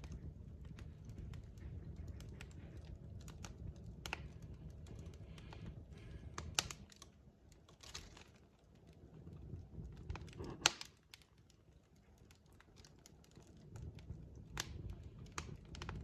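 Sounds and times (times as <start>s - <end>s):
low steady rumble: 0.0s - 16.0s
wood fire crackling: 0.0s - 16.0s.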